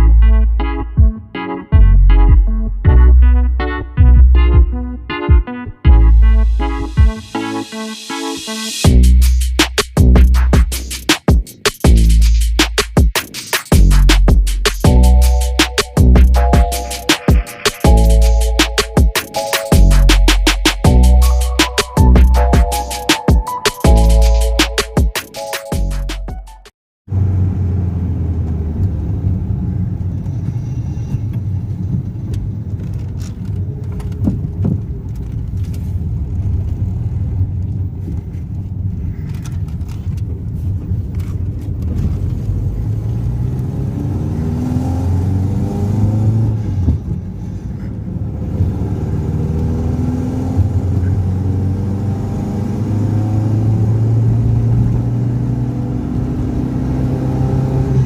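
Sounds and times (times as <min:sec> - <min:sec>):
sharp clicks: 0:15.6 - 0:18.0
car engine revving: 0:42.5 - 0:46.7.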